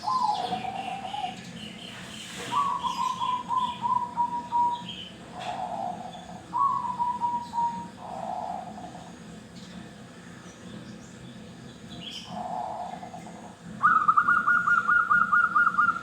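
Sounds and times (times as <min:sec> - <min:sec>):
dove cooing: 0:00.0 - 0:01.4, 0:02.4 - 0:09.2, 0:12.2 - 0:16.0.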